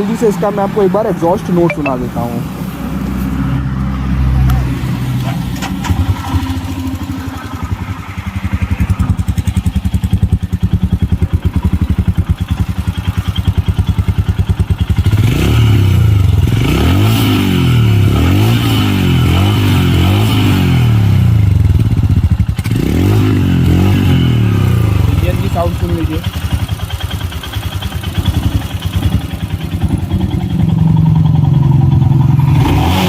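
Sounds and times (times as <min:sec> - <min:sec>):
motorcycle engine idling: 0:05.9 - 0:15.4, 0:21.3 - 0:22.7, 0:24.1 - 0:32.6.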